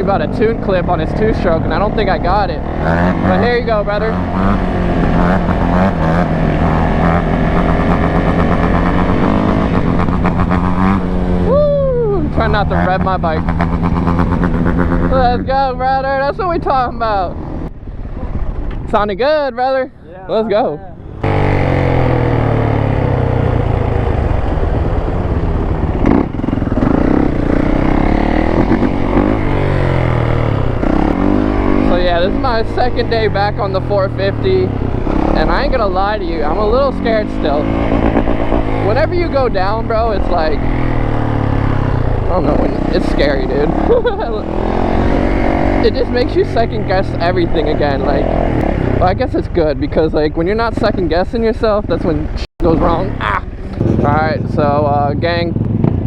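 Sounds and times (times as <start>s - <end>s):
dirt bike engine running: 0.0s - 17.8s, 21.0s - 56.0s.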